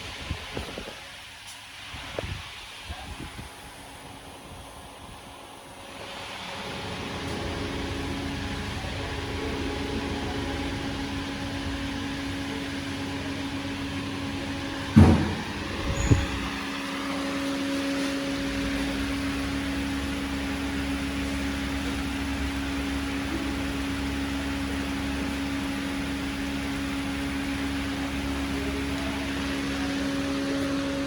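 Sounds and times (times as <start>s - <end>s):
heavy thumps: 14.9s - 16.5s.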